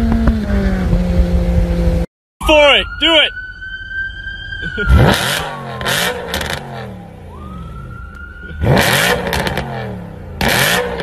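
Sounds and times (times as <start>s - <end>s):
car engine revving with pops: 0.0s - 2.0s, 5.0s - 7.0s, 8.0s - 11.0s.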